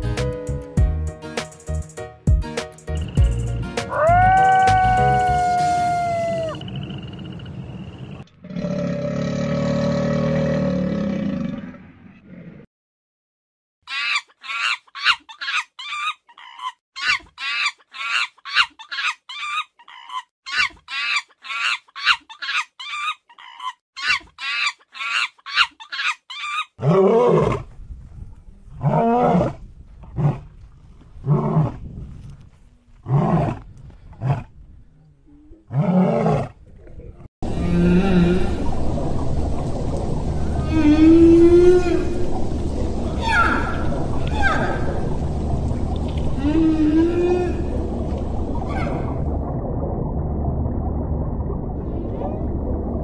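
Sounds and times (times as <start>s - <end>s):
whale sound: 3.9s - 6.7s, 37.4s - 53.0s
high-pitched monkey chirps: 13.9s - 26.7s
animal's lower rising-falling calls: 46.3s - 47.8s, 48.6s - 49.2s.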